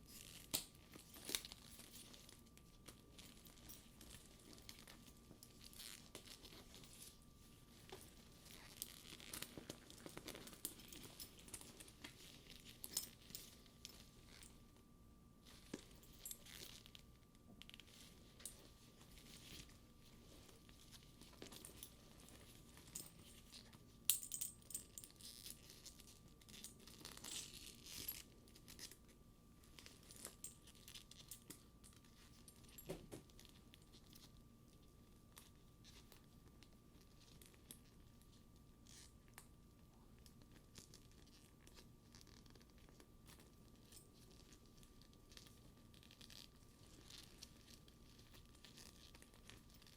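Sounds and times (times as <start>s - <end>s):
metal buckles clinking: 3.2s - 7.2s, 7.9s - 14.6s, 20.7s - 28.8s.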